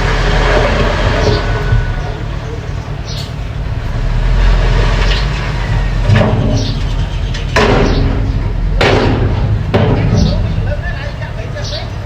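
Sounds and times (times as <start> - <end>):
bulldozer engine running: 0.0 - 12.0
heavy clunks: 3.1 - 11.8.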